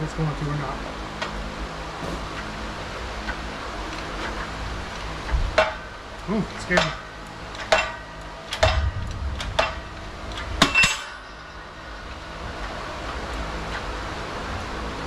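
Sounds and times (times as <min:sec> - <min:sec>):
metal-on-metal knocks ringing: 0:02.0 - 0:02.7.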